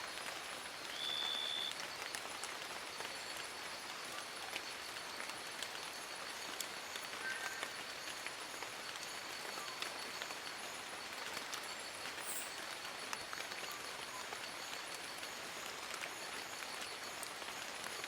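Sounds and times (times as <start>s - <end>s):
rain pattering on leaves: 0.0s - 18.0s
faint high chirps: 11.7s - 12.8s.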